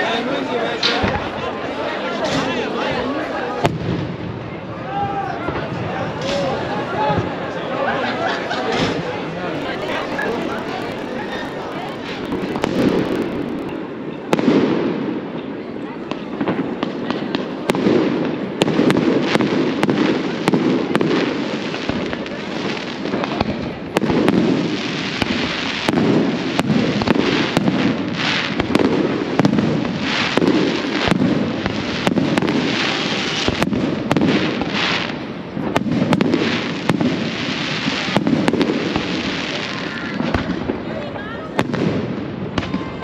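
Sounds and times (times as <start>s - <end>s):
fireworks crackling: 9.4s - 14.0s
fireworks bangs and pops: 22.7s - 40.8s.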